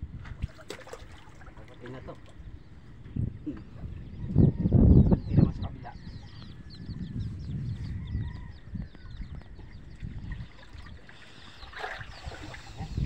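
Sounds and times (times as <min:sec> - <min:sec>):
birds chirping rapidly: 0:01.8 - 0:13.0.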